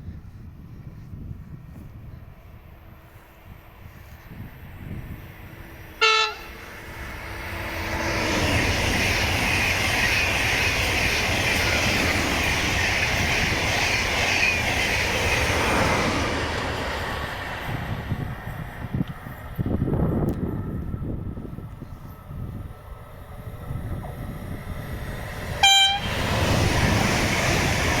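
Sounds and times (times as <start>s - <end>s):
train rushing and rumbling past: 0.0s - 28.0s
train horn blast: 6.0s - 6.7s, 25.6s - 26.3s.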